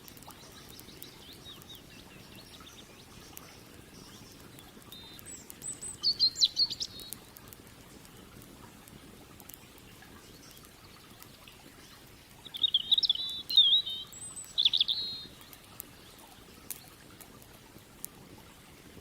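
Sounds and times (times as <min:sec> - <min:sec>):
campfire crackling: 0:00.0 - 0:19.0
songbird warbling: 0:00.1 - 0:07.4, 0:11.8 - 0:16.9.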